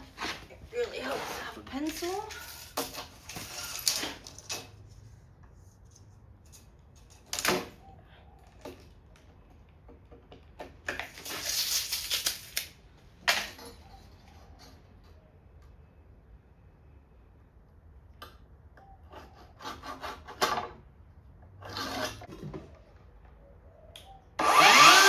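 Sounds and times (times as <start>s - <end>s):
rough scraping and clatter: 0.0s - 7.4s, 21.6s - 22.5s.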